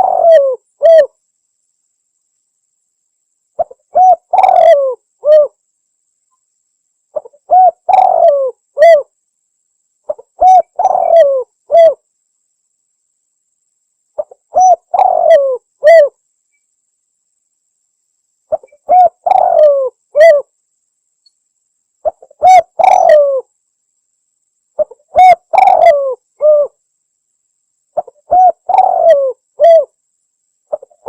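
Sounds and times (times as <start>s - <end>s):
dove cooing: 0.0s - 1.2s, 3.6s - 5.6s, 7.2s - 9.1s, 10.1s - 12.0s, 14.2s - 16.2s, 18.5s - 20.5s, 22.0s - 23.5s, 24.8s - 26.8s, 28.0s - 30.0s, 30.7s - 31.0s.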